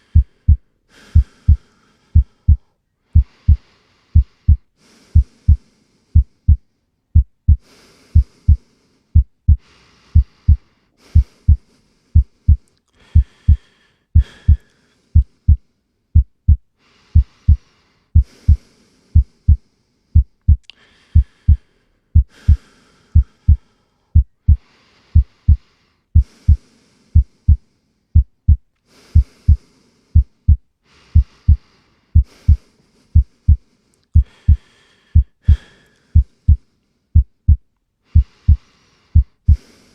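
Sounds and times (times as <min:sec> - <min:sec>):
heartbeat double thumps: 0:00.1 - 0:01.6, 0:02.2 - 0:02.6, 0:03.2 - 0:03.6, 0:04.2 - 0:04.6, 0:07.2 - 0:07.6, 0:09.2 - 0:09.6, 0:16.2 - 0:17.6, 0:18.2 - 0:18.6, 0:20.2 - 0:20.6, 0:22.2 - 0:22.6, 0:24.2 - 0:24.6, 0:25.2 - 0:25.6, 0:28.2 - 0:29.6, 0:30.2 - 0:30.6, 0:32.2 - 0:32.6, 0:37.2 - 0:38.6, 0:39.2 - 0:39.6.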